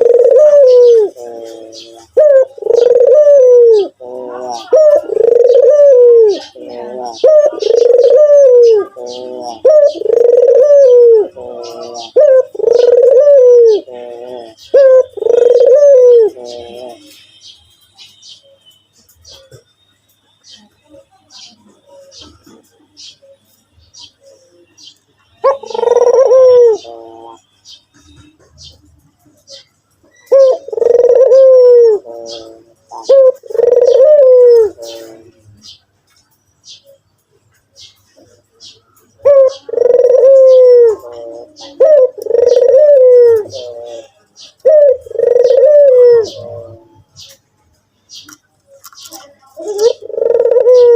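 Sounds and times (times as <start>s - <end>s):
dove cooing: 0.0s - 17.4s, 25.4s - 35.8s, 38.1s - 47.4s, 49.0s - 50.9s.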